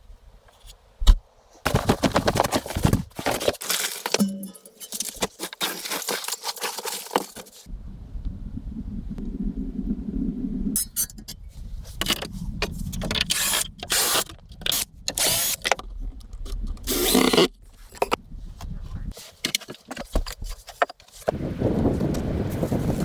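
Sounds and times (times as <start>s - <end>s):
objects scraping and knocking: 1.6s - 7.7s, 18.9s - 21.4s.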